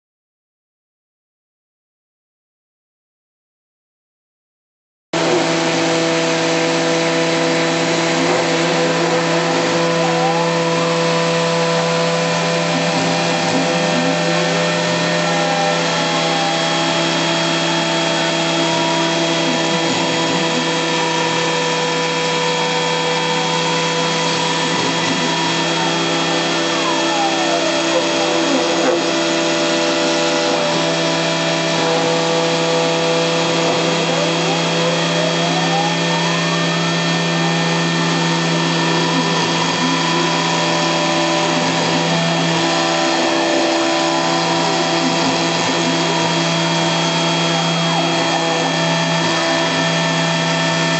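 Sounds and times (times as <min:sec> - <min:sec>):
router spindle cutting plastic: 0:05.2 - 0:50.9
whining tones sliding in pitch: 0:05.2 - 0:50.9.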